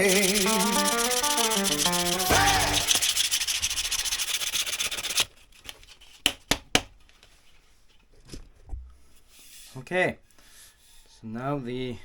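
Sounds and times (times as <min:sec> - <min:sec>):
music: 0:00.0 - 0:03.2
sanding rasping strokes on wood: 0:00.0 - 0:05.2.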